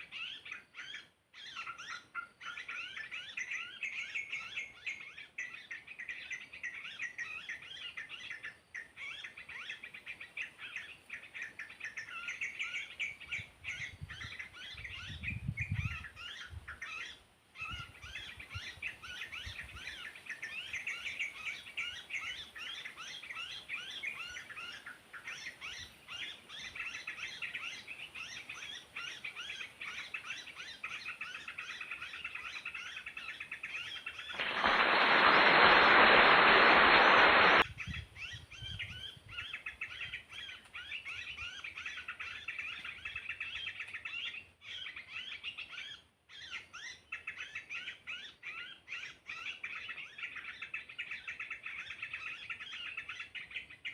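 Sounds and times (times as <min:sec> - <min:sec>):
small birds chirping: 0:00.0 - 0:53.9
loud rushing hiss: 0:34.4 - 0:37.6.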